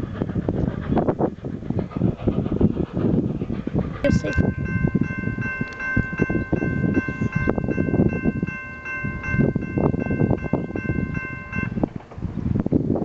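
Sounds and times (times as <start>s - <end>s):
train rumbling past: 0.0s - 13.0s
high ringing tone: 4.1s - 11.8s.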